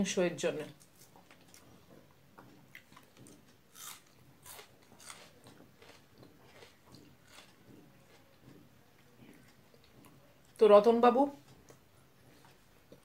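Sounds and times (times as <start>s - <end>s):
person chewing: 0.8s - 10.2s.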